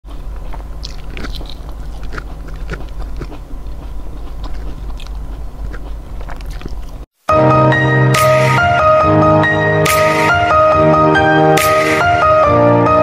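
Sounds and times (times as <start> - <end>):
man chewing food: 0.0 - 7.1
steady low hum: 0.1 - 7.1
mouth clicks and smacks: 0.4 - 7.1.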